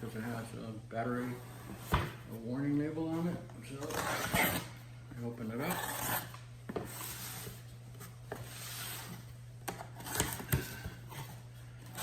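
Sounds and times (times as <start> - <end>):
cardboard rustling and scraping: 5.5 - 12.0.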